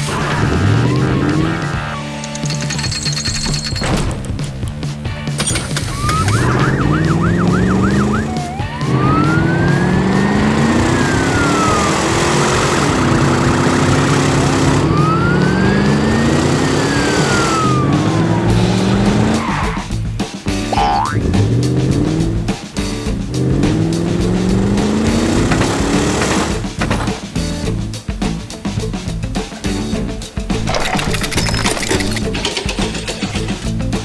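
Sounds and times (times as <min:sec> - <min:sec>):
engines revving: 0:00.0 - 0:27.1
police siren: 0:05.9 - 0:19.5.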